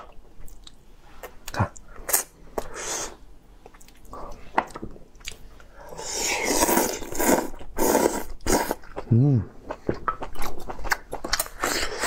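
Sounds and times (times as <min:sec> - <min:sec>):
person chewing crab: 0:04.7 - 0:12.0.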